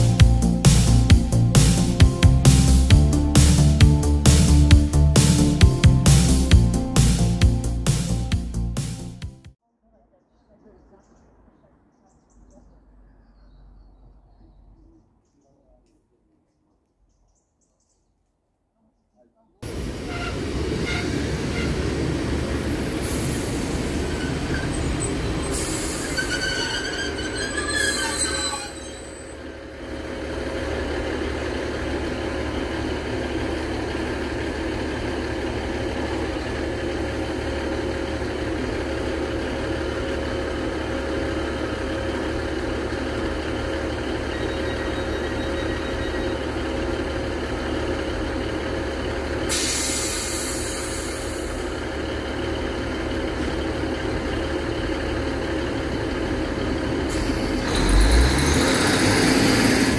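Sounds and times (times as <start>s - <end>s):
diesel engines idling: 0.0s - 9.2s, 19.6s - 59.9s
train wheels and brakes squealing: 19.7s - 29.5s, 43.9s - 46.7s, 49.5s - 51.8s, 57.1s - 59.9s
short burst of hiss: 49.5s - 51.6s.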